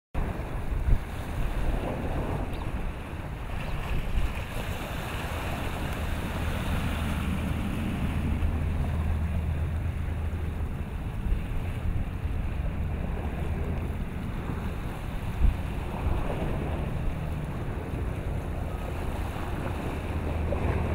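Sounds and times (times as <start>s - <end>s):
waves washing: 0.2s - 20.9s
wind rumbling on microphone: 0.2s - 20.9s
low steady hum: 5.4s - 20.9s.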